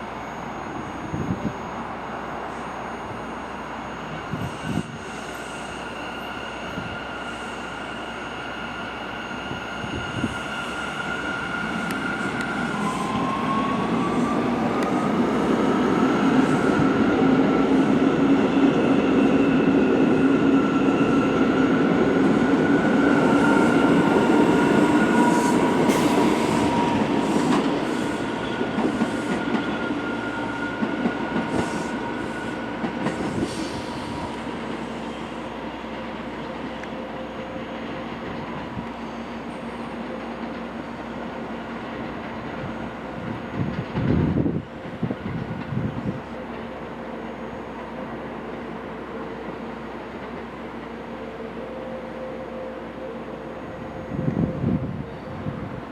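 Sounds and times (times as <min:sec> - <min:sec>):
subway train passing: 0:00.0 - 0:55.9
high-pitched whining tones: 0:00.2 - 0:35.4.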